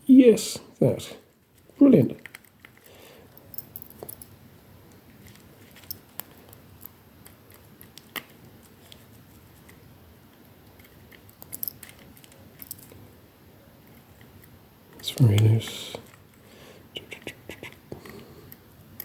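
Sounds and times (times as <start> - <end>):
small plastic parts handled: 4.9 - 13.0.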